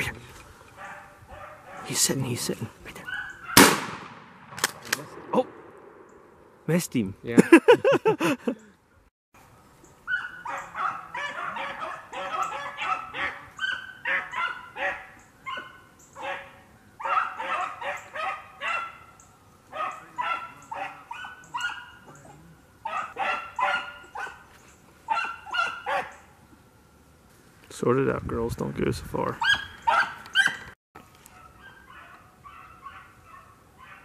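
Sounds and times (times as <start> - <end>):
dogs barking: 0.8 - 2.1, 3.0 - 3.6, 10.1 - 26.3, 29.4 - 30.7, 31.3 - 34.0.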